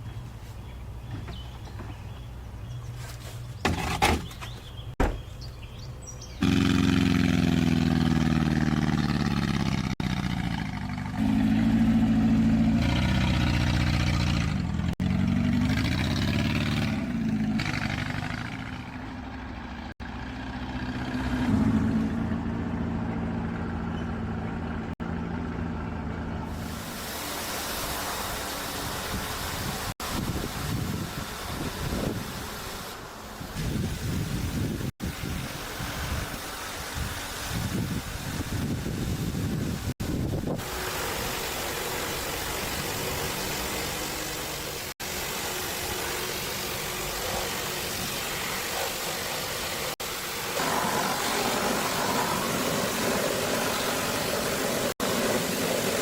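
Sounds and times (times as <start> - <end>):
knocks: 3.6 - 5.3
car engine starting and revving: 6.4 - 26.8
hiss: 26.5 - 56.0.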